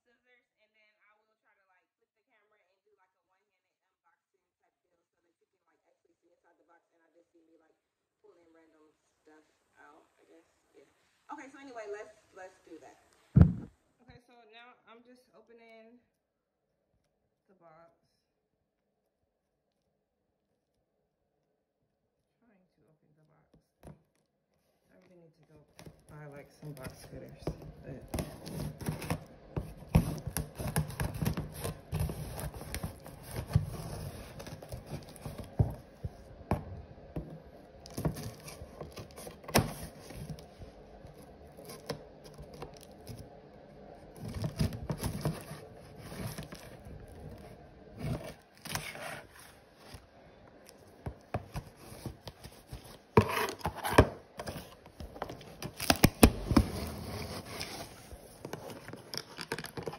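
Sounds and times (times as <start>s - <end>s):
scissors cutting cardboard: 26.6s - 35.8s, 37.9s - 40.5s, 41.1s - 43.2s, 44.2s - 46.8s, 51.3s - 59.9s
cardboard tearing: 26.7s - 35.9s, 37.8s - 43.2s, 44.1s - 50.0s, 51.4s - 59.9s.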